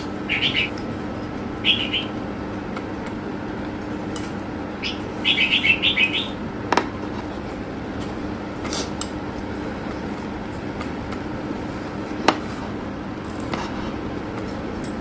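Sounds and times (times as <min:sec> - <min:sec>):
small bird chirping: 0:00.0 - 0:00.8, 0:01.6 - 0:02.2, 0:04.8 - 0:06.4
steady low hum: 0:00.0 - 0:15.0.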